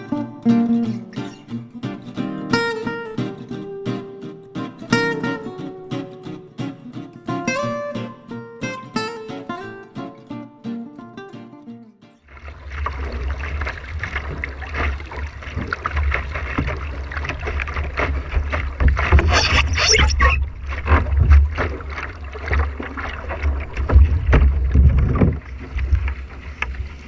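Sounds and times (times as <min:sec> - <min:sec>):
water splashing and rushing: 0:12.3 - 0:27.0
wind buffeting microphone: 0:23.4 - 0:27.0.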